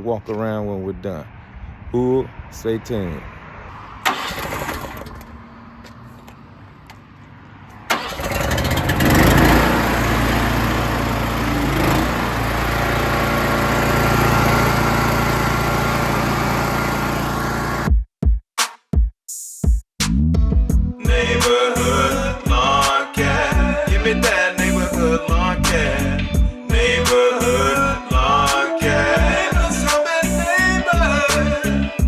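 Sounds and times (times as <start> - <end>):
small gasoline engine starting: 4.0 - 5.4, 7.9 - 17.9.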